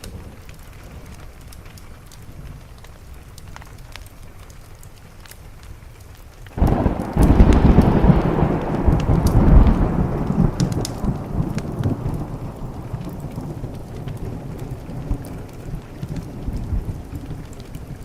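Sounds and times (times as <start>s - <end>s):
light rain: 0.0s - 18.0s
wood fire crackling: 0.0s - 18.0s
loud thunderclap: 6.6s - 18.0s.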